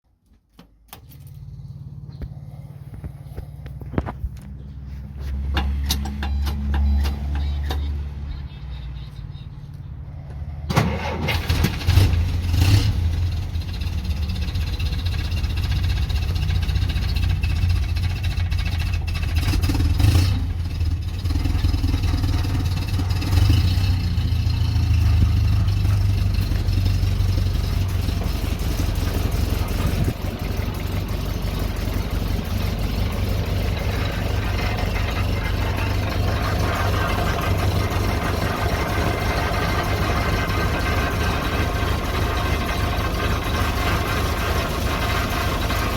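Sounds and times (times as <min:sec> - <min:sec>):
engine starting and idling: 0:10.7 - 0:45.9.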